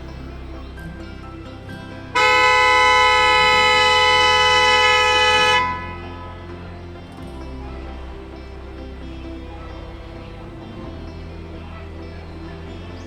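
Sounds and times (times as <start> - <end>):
quiet background music: 0.0 - 13.0
vehicle horn blast: 2.1 - 6.7.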